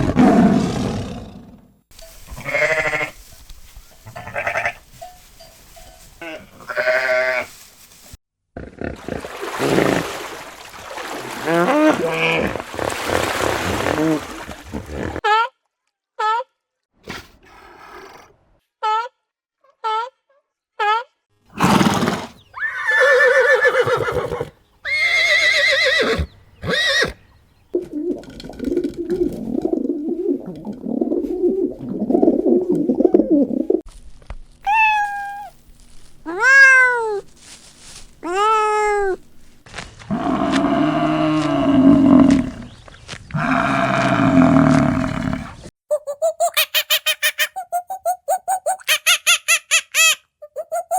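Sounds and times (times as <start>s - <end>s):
farm animal cries: 2.4s - 3.2s, 4.1s - 4.8s, 6.2s - 7.5s, 21.6s - 27.2s, 34.7s - 35.5s
low grunting: 40.1s - 45.7s.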